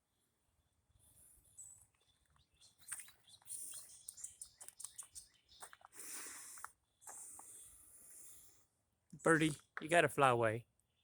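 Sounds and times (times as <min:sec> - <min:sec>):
bird chirps: 0:01.5 - 0:05.9, 0:09.2 - 0:09.8.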